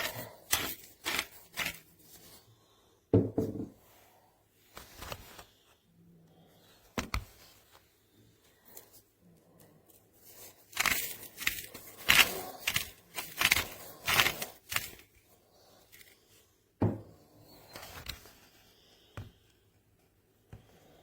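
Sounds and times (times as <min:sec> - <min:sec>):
salt mill grinding: 0:00.0 - 0:01.9, 0:10.8 - 0:15.0.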